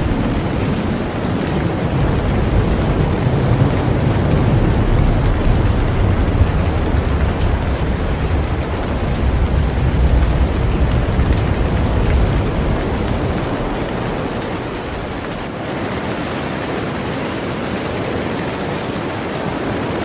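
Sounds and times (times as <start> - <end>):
deep rumble: 0.0 - 15.5
heavy rain on a boat: 0.0 - 20.0.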